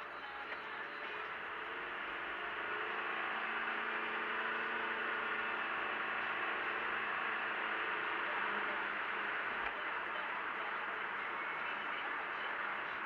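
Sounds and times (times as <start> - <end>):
car engine droning: 0.0 - 13.0
tyre and road noise: 0.0 - 13.0.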